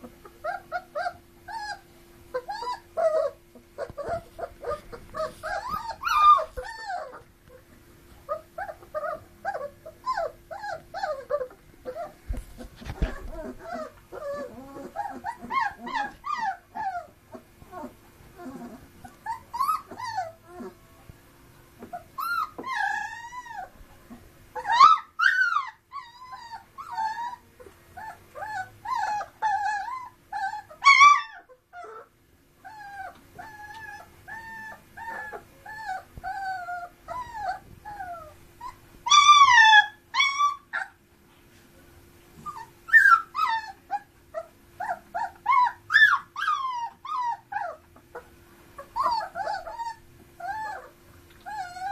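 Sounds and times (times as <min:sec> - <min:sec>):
puppies whimpering: 0:00.0 - 0:20.8, 0:21.8 - 0:41.0, 0:42.4 - 0:51.9.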